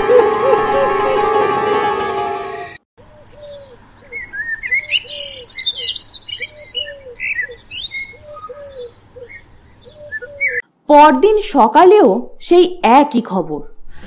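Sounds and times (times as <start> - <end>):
background music: 0.0 - 2.8.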